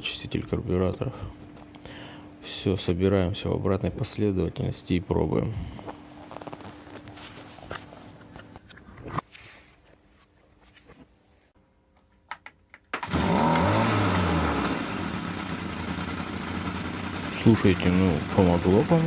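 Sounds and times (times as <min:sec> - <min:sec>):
trimmer engine running: 0:13.0 - 0:19.0.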